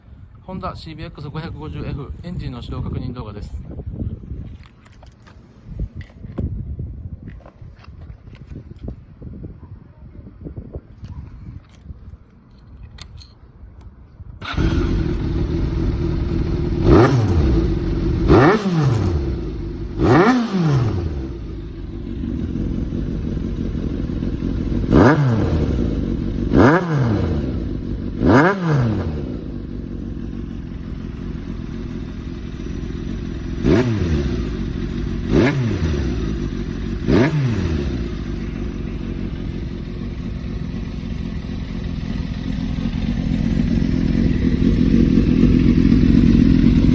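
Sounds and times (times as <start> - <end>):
motorcycle engine starting and idling: 13.9 - 46.9
engine revving: 14.4 - 21.6, 22.3 - 30.0, 33.5 - 40.2.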